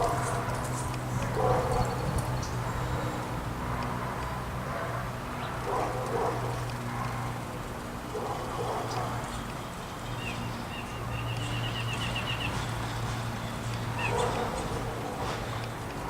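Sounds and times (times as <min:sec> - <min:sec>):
bird chirps: 0:10.0 - 0:12.7
songbird trilling: 0:10.1 - 0:12.6.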